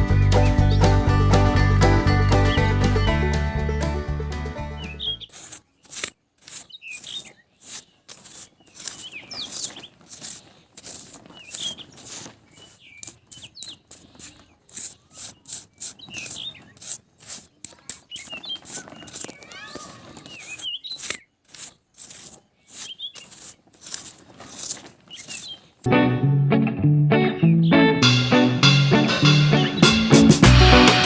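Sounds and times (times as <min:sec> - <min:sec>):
music: 0:00.0 - 0:05.1, 0:25.9 - 0:31.0
scratchy clicks: 0:05.2 - 0:25.9
bird-like chirps: 0:18.1 - 0:21.4.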